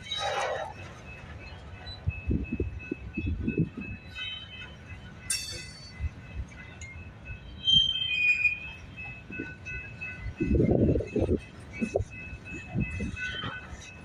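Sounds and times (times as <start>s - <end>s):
freight train wheel squeal: 0.0s - 14.0s
train cars rumbling: 0.0s - 14.0s
sharp metallic clank: 5.3s - 6.0s.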